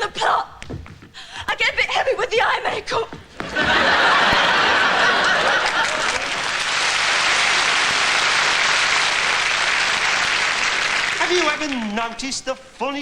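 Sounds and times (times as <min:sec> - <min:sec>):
audience laughing: 0:03.4 - 0:10.2
audience clapping: 0:03.4 - 0:13.0.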